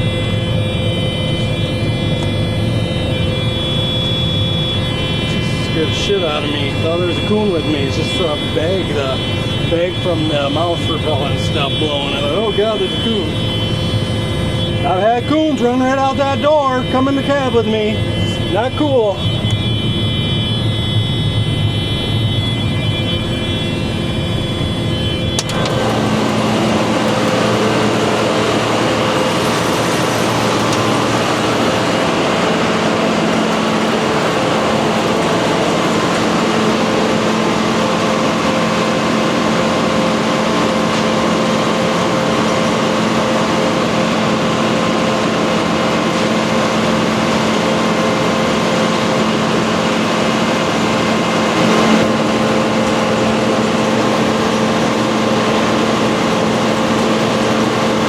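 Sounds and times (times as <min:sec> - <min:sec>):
combine harvester engine droning: 0:00.0 - 0:58.0.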